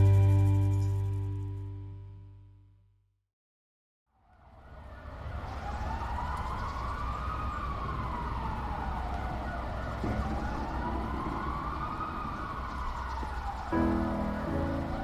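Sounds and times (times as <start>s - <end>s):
siren wailing: 4.3s - 15.0s.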